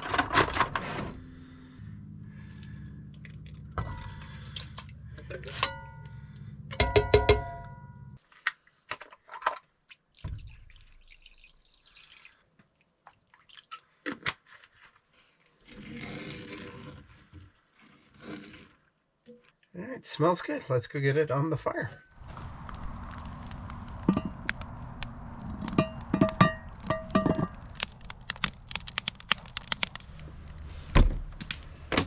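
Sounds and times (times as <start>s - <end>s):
steady low hum: 1.0s - 8.2s
liquid pouring into a pot: 10.2s - 12.5s.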